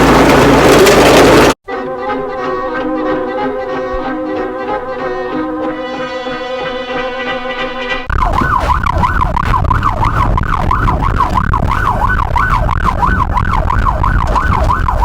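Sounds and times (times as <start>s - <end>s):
music: 1.6s - 8.1s
emergency siren yelping: 8.1s - 15.0s.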